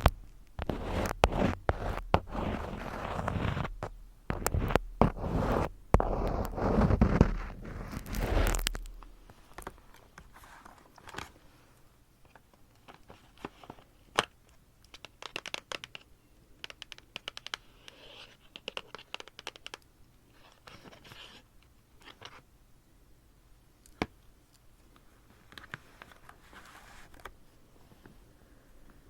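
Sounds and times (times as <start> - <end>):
paper rustling: 0.0 - 11.4
small scratches and light taps: 0.0 - 11.4, 12.2 - 22.5, 23.8 - 28.2.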